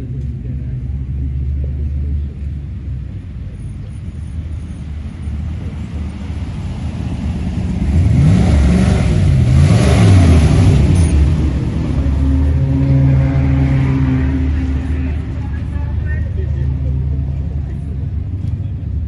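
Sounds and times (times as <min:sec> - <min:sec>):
car engines running: 0:00.0 - 0:19.0
car driving past: 0:03.9 - 0:17.9.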